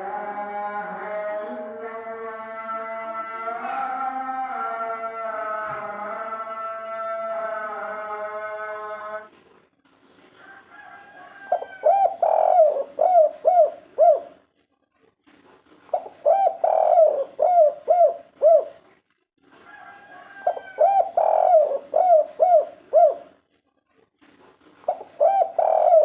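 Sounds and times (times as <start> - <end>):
dove cooing: 11.1 - 14.5, 15.9 - 18.9, 20.1 - 23.4, 24.8 - 26.0.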